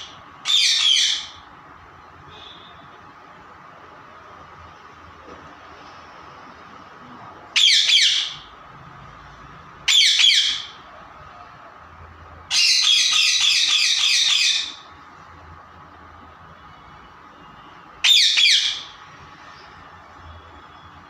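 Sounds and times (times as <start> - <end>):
parrot squawking: 0.0 - 1.5, 7.5 - 8.5, 9.8 - 10.9, 12.5 - 14.9, 18.0 - 19.0.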